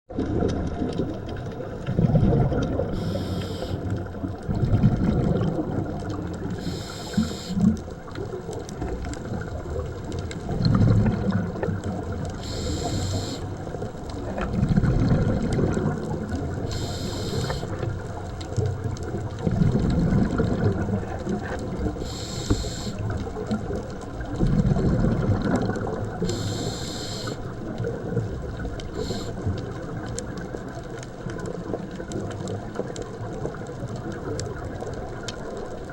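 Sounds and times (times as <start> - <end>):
exhaled bubbles rumbling: 0.1 - 35.9
regulator hissing on inhalation: 2.9 - 3.9, 6.6 - 7.7, 12.4 - 13.5, 16.7 - 17.8, 22.0 - 23.0, 26.2 - 27.4, 29.0 - 29.4.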